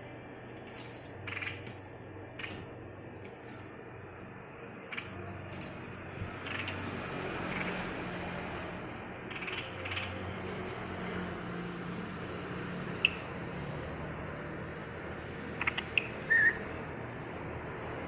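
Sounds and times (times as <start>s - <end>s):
steady low hum: 0.0s - 18.0s
bird scratchy calls: 1.1s - 1.7s, 6.4s - 7.9s, 9.3s - 10.8s, 15.3s - 17.1s.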